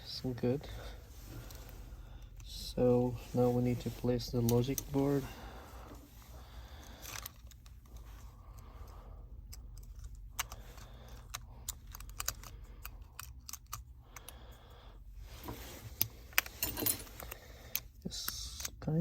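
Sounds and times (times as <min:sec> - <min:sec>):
steady low hum: 0:00.0 - 0:19.0
light clicks and taps of small parts: 0:06.8 - 0:14.6.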